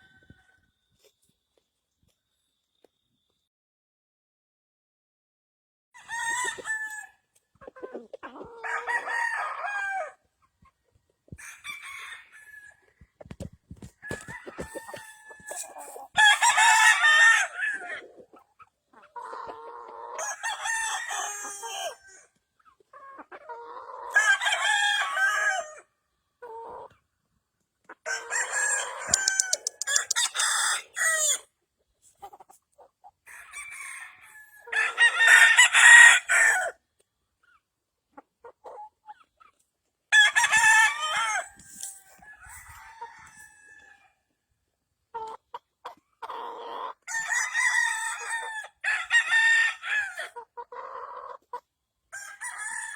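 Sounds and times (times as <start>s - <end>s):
roosters crowing: 6.0s - 7.1s, 8.5s - 10.2s, 11.3s - 12.8s, 14.0s - 18.0s, 28.1s - 31.4s, 40.2s - 44.1s, 47.1s - 50.4s
chickens clucking: 7.5s - 8.6s, 13.1s - 16.2s, 17.8s - 20.2s, 22.6s - 24.1s, 26.4s - 27.0s, 27.8s - 33.2s, 38.1s - 39.6s, 45.1s - 47.0s, 50.4s - 51.7s.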